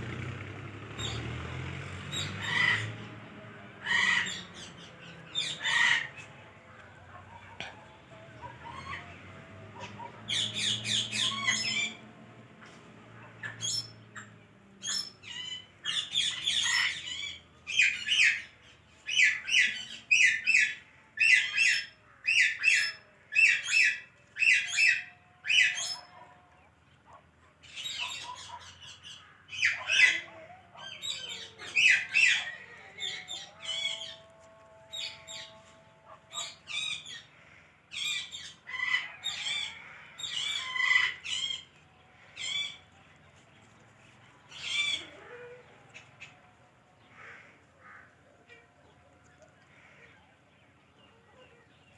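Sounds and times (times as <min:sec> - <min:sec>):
parrot squawking: 0:02.1 - 0:02.9, 0:03.8 - 0:06.3, 0:09.8 - 0:12.0, 0:13.4 - 0:26.3, 0:27.6 - 0:37.3, 0:37.9 - 0:41.7, 0:44.5 - 0:45.6.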